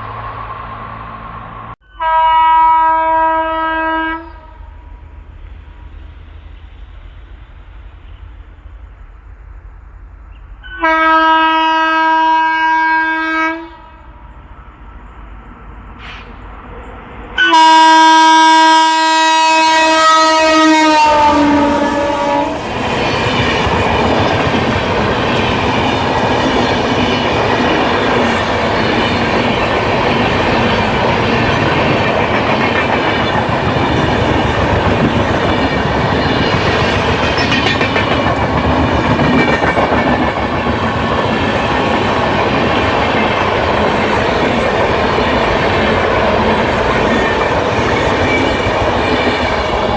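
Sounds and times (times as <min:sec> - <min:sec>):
train horn blast: 0:01.8 - 0:05.0, 0:10.6 - 0:14.2, 0:17.4 - 0:22.8
train wheels on rails: 0:14.1 - 0:49.9.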